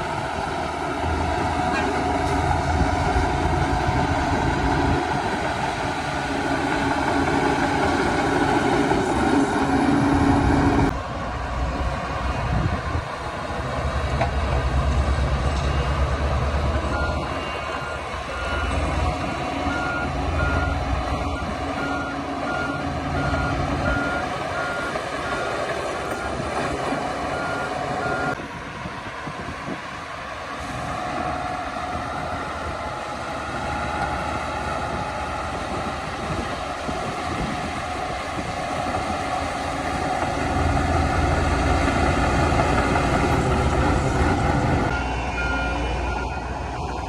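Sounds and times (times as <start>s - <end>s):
heavy diesel engines working: 0.0s - 47.0s
reversing alarm beeping: 16.7s - 28.4s, 40.1s - 47.0s.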